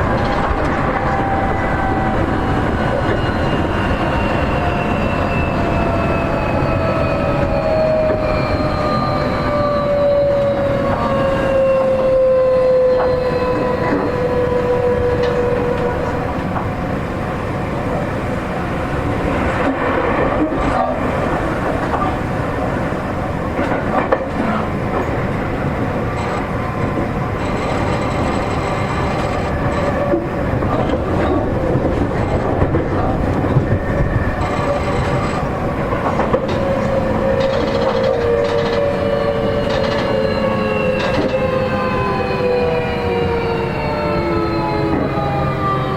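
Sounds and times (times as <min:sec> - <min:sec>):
train motor whine: 0:00.0 - 0:45.9
wheel and rail noise: 0:00.0 - 0:45.9
clicks over rail joints: 0:26.2 - 0:40.3.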